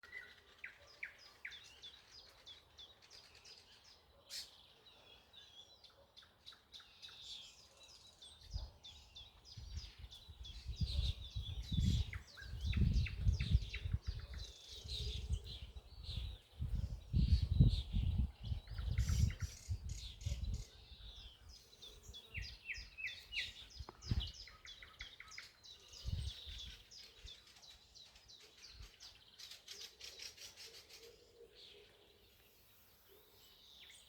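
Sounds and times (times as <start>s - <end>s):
songbirds chirping and trilling: 0.0s - 34.0s.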